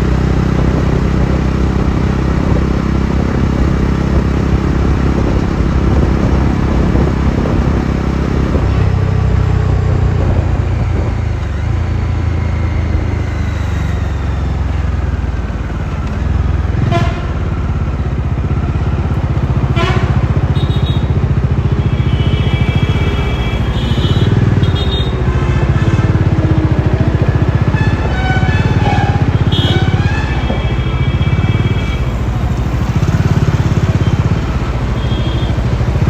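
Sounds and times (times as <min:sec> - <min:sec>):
motorcycle engine running: 0:00.0 - 0:36.0
wind and road noise: 0:00.0 - 0:36.0
vehicle horns: 0:16.7 - 0:17.7, 0:19.6 - 0:36.0.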